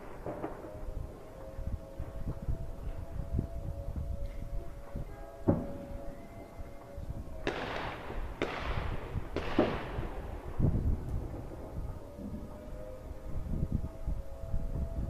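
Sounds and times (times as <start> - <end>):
fireworks bangs with hiss: 7.4 - 10.2.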